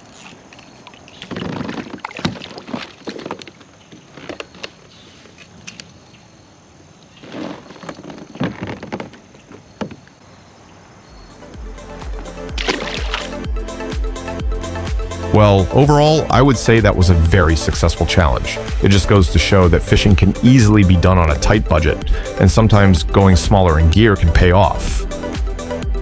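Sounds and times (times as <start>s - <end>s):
water splashing: 0.0s - 4.8s, 11.2s - 25.8s.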